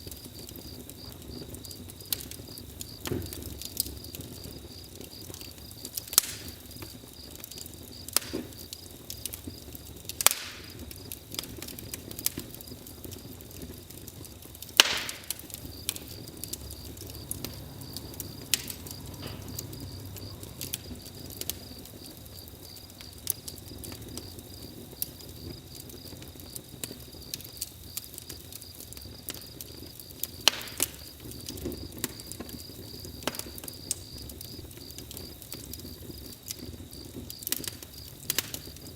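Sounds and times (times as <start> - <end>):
campfire crackling and popping: 0.0 - 38.9
crickets chirping: 0.0 - 38.9.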